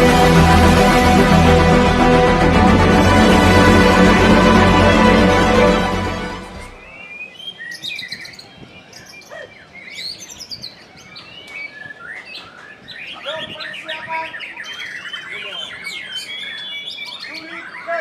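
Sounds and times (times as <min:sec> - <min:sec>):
bird singing whistles and trills: 0:06.9 - 0:18.0.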